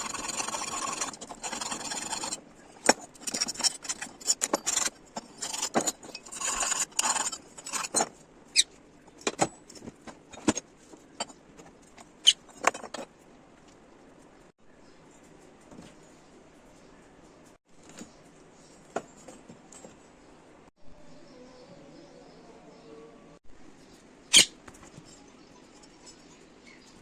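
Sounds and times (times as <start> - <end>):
hand file rasping on metal: 0.0 - 8.0.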